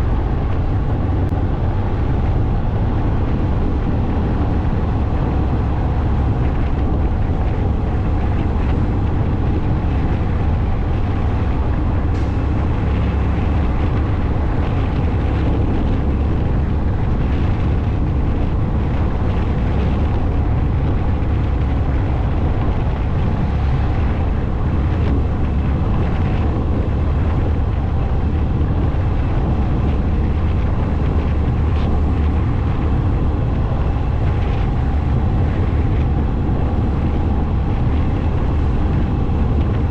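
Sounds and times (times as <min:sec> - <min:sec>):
motorcycle engine drone: 0:00.0 - 0:39.9.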